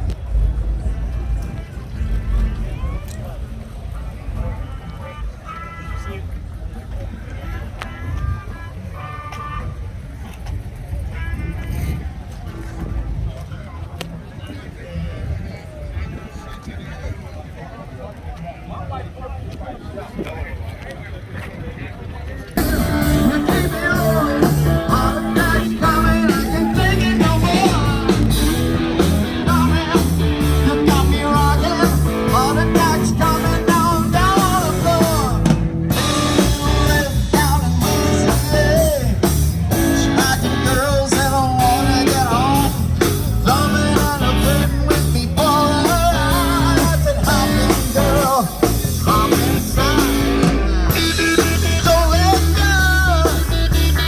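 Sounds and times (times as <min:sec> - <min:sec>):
drum kit beat: 0:22.6 - 0:54.0
electric guitar: 0:22.6 - 0:54.0
person singing: 0:22.6 - 0:54.0.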